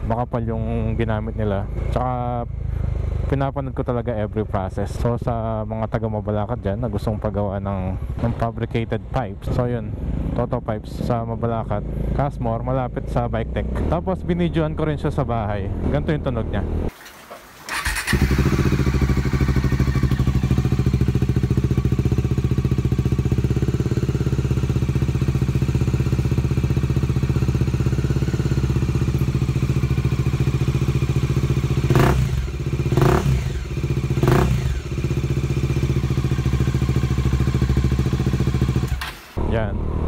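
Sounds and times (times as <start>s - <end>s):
motorcycle engine idling: 17.7s - 39.0s.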